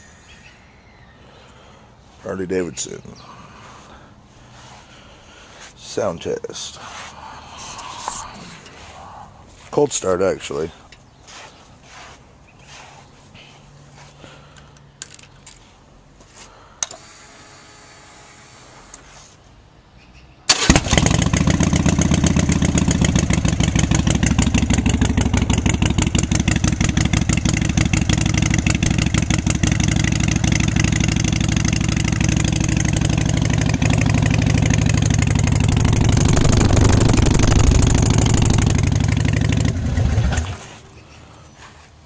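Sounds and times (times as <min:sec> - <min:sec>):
motorcycle engine running: 0:20.8 - 0:40.8.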